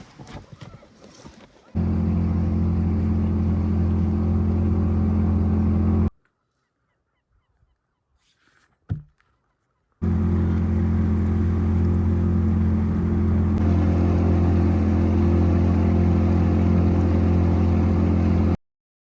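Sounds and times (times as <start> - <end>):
boat engine humming: 1.8 - 6.1, 10.0 - 18.6.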